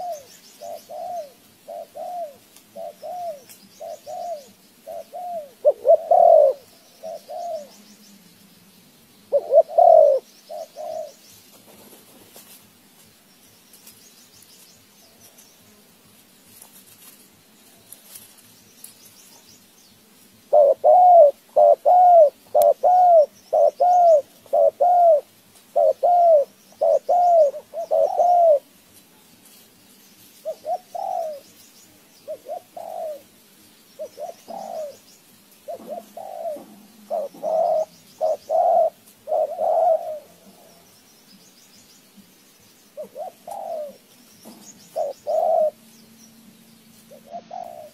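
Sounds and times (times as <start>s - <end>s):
bird cooing: 0.0s - 8.1s, 9.3s - 12.0s, 20.5s - 28.7s, 30.4s - 31.5s, 32.2s - 33.3s, 34.0s - 40.9s, 42.9s - 45.9s, 47.1s - 47.9s
small birds chirping: 0.0s - 47.9s.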